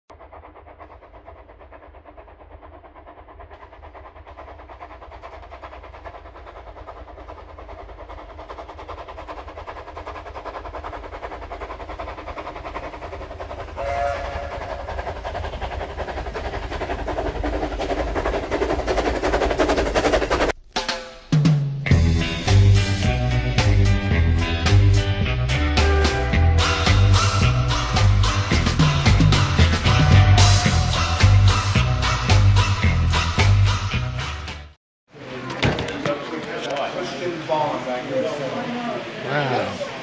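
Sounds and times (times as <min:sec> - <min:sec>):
train clattering: 0:00.1 - 0:20.6
train whistle blast: 0:13.8 - 0:14.8.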